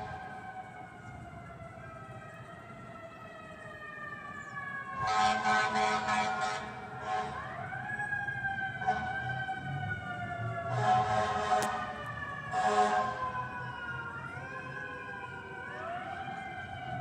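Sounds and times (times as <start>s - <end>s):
fire truck siren wailing: 0.0s - 17.0s
pulsing siren blare: 7.3s - 17.0s.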